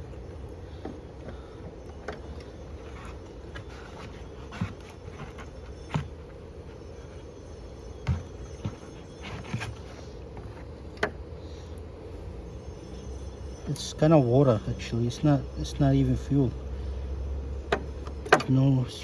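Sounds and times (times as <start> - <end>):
knocks and clunks of mower: 0.0 - 6.3, 17.3 - 19.0
steady low hum: 0.0 - 19.0.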